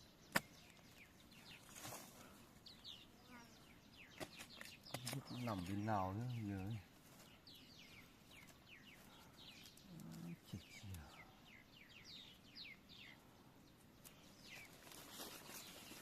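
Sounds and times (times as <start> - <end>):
faint low voice-like sound: 9.8 - 11.3.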